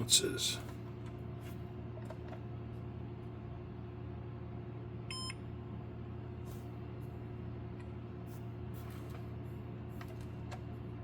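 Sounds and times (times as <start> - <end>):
steady low hum: 0.0 - 11.0
digital scale beep: 5.1 - 5.4.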